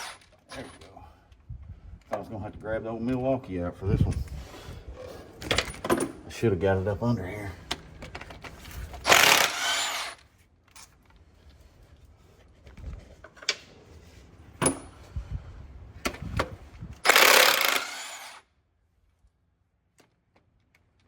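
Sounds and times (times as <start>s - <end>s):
impact wrench bursts: 9.0s - 10.2s, 17.0s - 18.4s.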